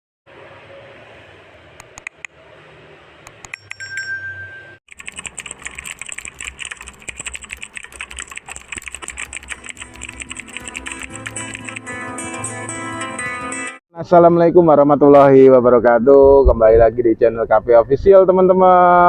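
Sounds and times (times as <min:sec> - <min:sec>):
rapid clicks: 0:04.9 - 0:11.8.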